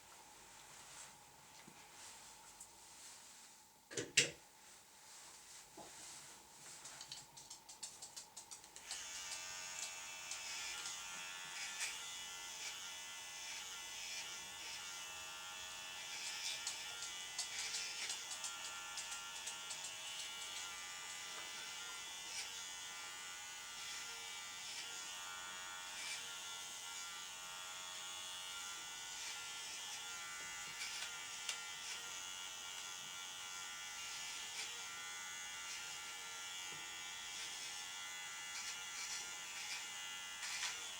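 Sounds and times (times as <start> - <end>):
electric clippers buzzing: 8.8 - 40.9.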